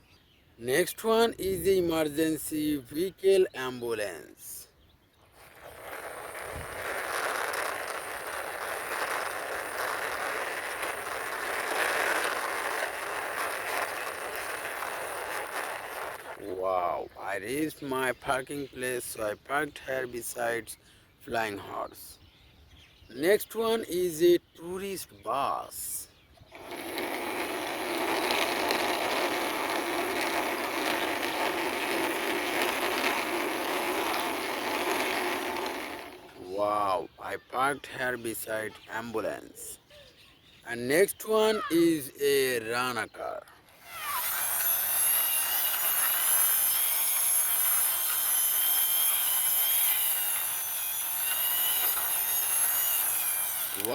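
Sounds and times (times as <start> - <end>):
plastic toy wheels rolling: 5.3 - 16.5, 26.5 - 36.5, 42.4 - 53.9.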